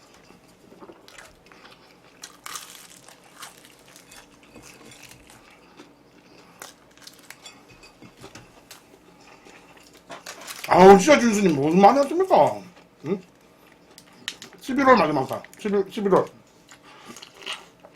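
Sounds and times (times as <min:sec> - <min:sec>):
crunching and chewing food: 0:00.0 - 0:14.6, 0:15.2 - 0:17.9
plastic food containers crinkling: 0:01.1 - 0:05.5, 0:06.6 - 0:07.4, 0:09.8 - 0:11.8.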